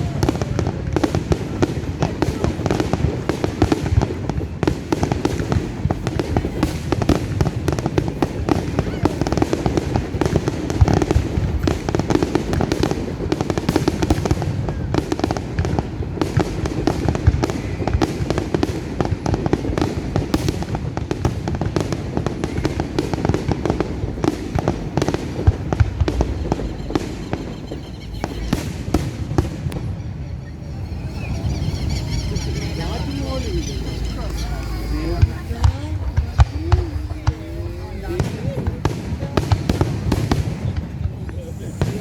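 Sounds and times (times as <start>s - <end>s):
fireworks banging and crackling: 0.0s - 42.0s.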